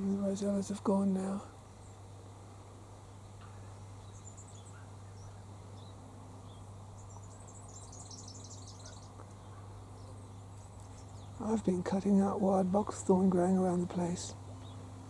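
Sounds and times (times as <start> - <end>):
steady low hum: 0.0 - 15.0
faint bird chirps: 3.1 - 11.6
rapid high bird twittering: 3.4 - 12.6.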